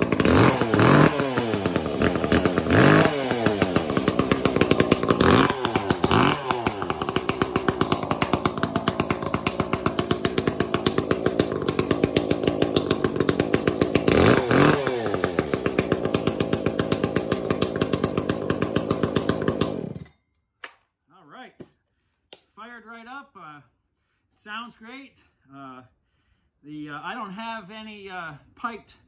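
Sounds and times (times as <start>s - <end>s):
chainsaw idling and revving: 0.0s - 20.2s.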